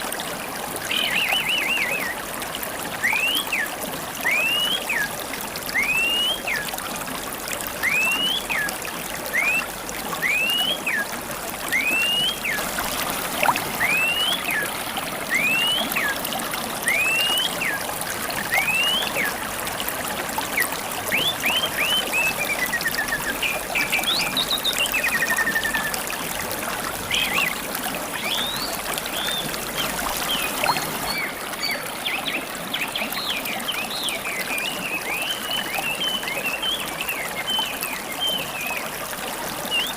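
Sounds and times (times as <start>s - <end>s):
river water trickling: 0.0s - 39.9s
songbird whistling and trilling: 0.9s - 2.2s, 3.0s - 5.1s, 5.7s - 6.7s, 7.8s - 11.1s, 11.7s - 12.6s, 13.8s - 14.7s, 15.3s - 16.2s, 16.8s - 17.8s, 18.5s - 19.4s, 20.6s - 26.1s, 28.2s - 31.8s.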